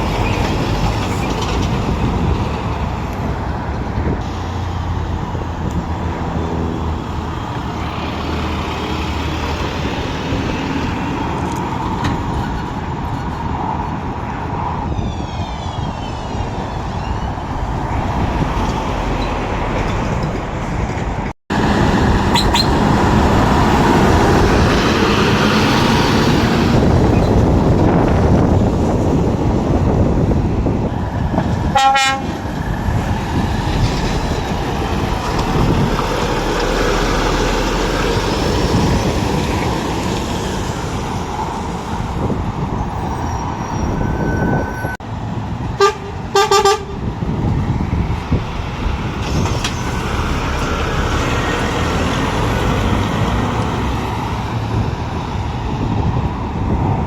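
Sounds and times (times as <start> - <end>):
heavy lorry engines and traffic: 0.0 - 57.0
truck horn blasts: 31.7 - 32.4, 45.8 - 47.1.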